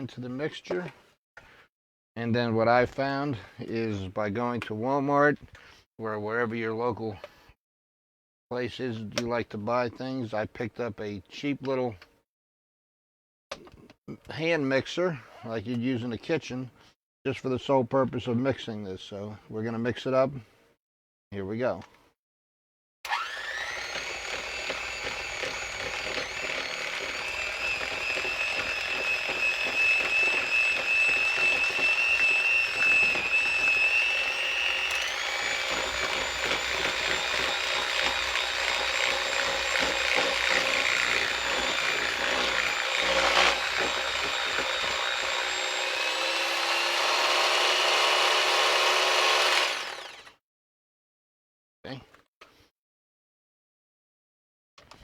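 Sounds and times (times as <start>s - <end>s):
electric hand mixer running: 23.1s - 50.3s
beaters churning thick mix: 23.8s - 46.2s.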